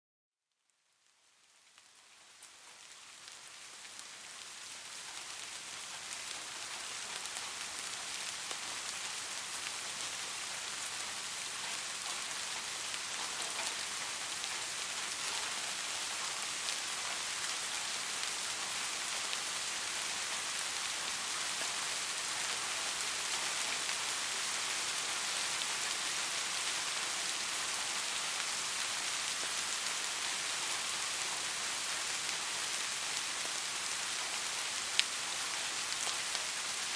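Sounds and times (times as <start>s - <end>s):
steady rain falling: 0.6s - 36.9s.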